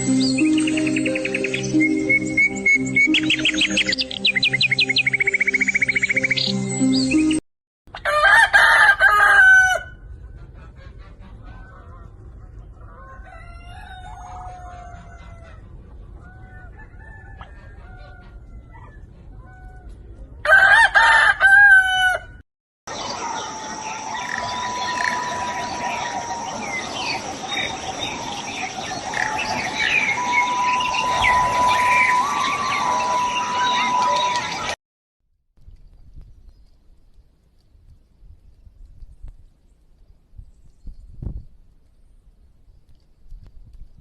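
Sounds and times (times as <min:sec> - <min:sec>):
rooster crowing: 0:08.0 - 0:10.0, 0:13.0 - 0:15.6, 0:16.2 - 0:19.0, 0:20.4 - 0:22.4, 0:23.2 - 0:27.2, 0:28.4 - 0:34.6
chickens clucking: 0:10.1 - 0:19.0.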